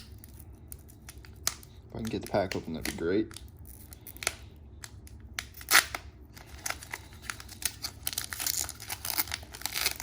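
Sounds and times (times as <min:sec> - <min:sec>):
foil wrapper tearing: 0:05.4 - 0:10.0
foil crackling: 0:05.6 - 0:10.0.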